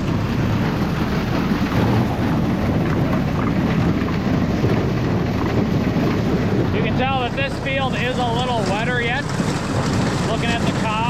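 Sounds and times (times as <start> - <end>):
machinery rattling clatter: 0.0 - 11.0
tractor rumbling: 0.0 - 11.0.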